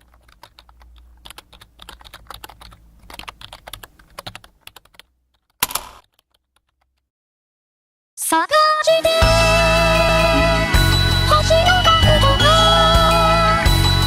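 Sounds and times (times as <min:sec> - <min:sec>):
typing on computer keyboard: 0:00.0 - 0:07.0.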